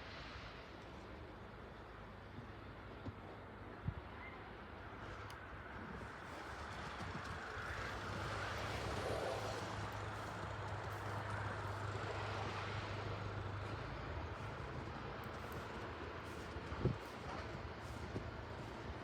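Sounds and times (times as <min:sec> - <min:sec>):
motor vehicle passing: 0:06.4 - 0:19.0.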